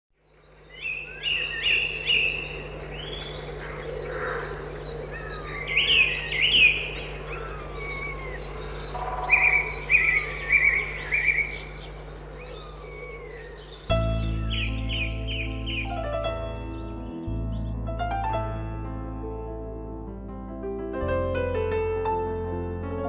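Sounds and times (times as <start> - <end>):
steady low hum: 0.2 - 21.6
birds chirping and whistling: 0.6 - 18.6.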